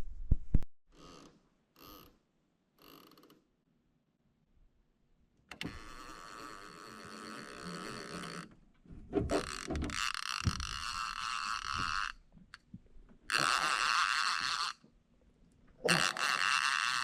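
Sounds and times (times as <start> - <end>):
fishing reel clicker buzzing: 5.6 - 8.5, 9.5 - 12.2, 13.3 - 14.8, 15.9 - 17.0.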